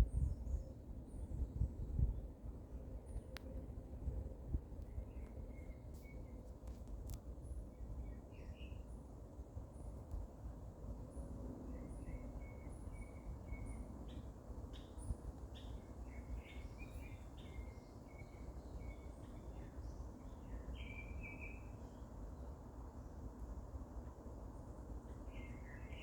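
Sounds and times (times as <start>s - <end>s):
songbirds chirping: 11.7s - 23.6s.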